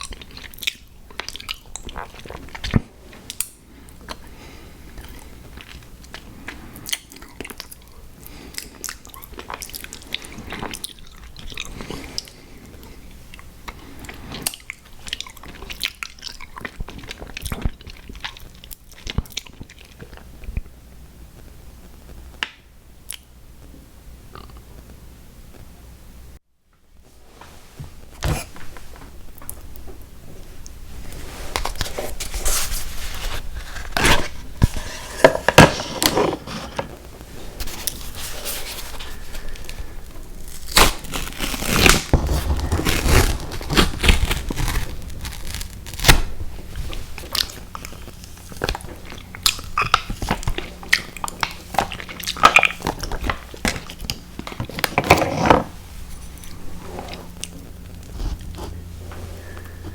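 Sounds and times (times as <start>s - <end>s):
close chewing and crunching: 0.0s - 20.7s, 37.0s - 55.1s, 56.0s - 59.9s
crinkling: 27.2s - 59.9s.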